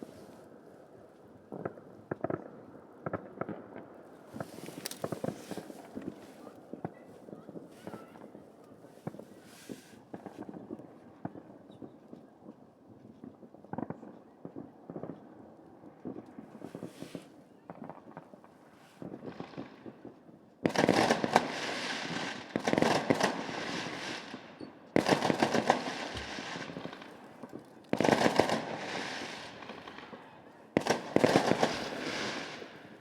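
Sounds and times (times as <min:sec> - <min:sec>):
fireworks popping: 0:01.5 - 0:12.0, 0:16.0 - 0:33.0
firecrackers crackling bangs: 0:03.1 - 0:08.4, 0:09.0 - 0:10.8, 0:16.2 - 0:20.0, 0:20.7 - 0:33.0.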